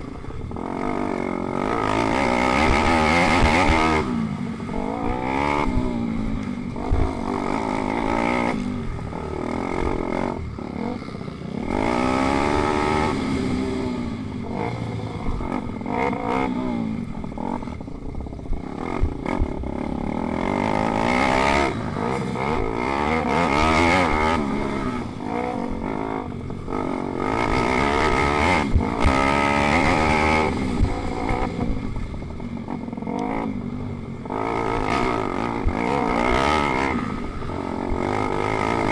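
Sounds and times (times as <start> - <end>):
small motorbike engines revving: 0.0 - 38.9.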